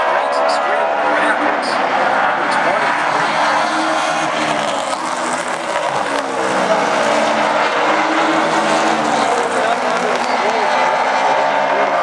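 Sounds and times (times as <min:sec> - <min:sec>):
race car engines: 0:00.0 - 0:12.0.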